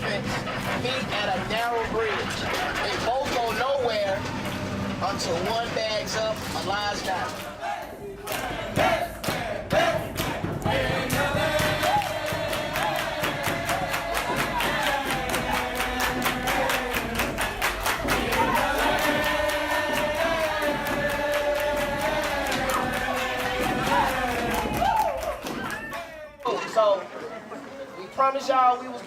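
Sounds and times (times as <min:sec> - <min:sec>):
fast steady beat: 0:05.2 - 0:25.8
group of voices singing: 0:06.5 - 0:25.6.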